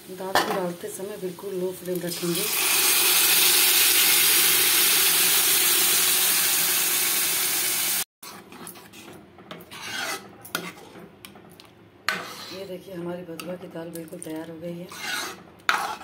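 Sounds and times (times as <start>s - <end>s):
food sizzling in hot oil: 0.0s - 8.1s
metal ladle scraping a pan: 8.2s - 11.0s, 12.1s - 12.8s, 14.8s - 16.0s.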